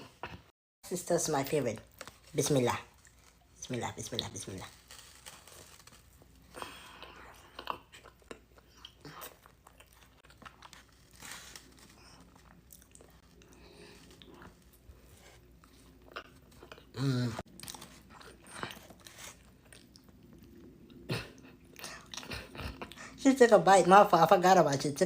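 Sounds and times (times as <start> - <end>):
person chewing toast: 4.7 - 23.2.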